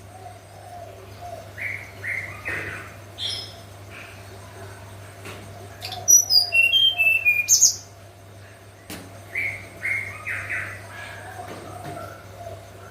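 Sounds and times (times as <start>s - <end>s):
bird singing whistled notes: 5.8s - 7.9s.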